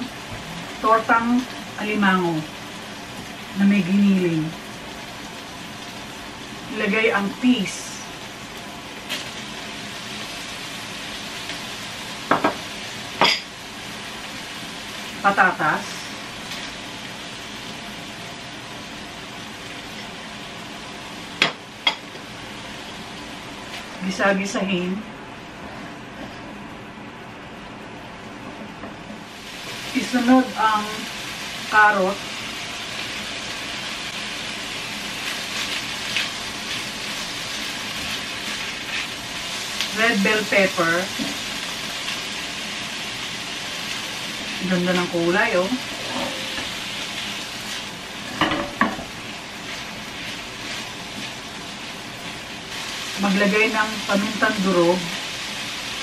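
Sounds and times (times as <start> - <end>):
food sizzling in a wok: 0.0 - 56.0
spatula scraping: 45.8 - 46.8
dishes clinking: 45.9 - 46.8, 48.3 - 49.0.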